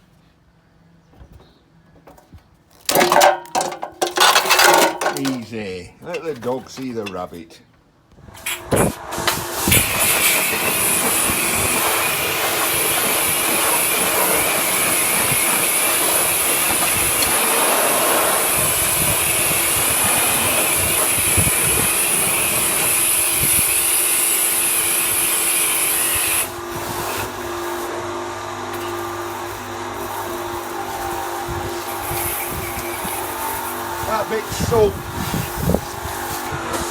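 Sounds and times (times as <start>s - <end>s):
compressed air blow gun hissing: 8.4s - 27.9s, 28.8s - 36.9s.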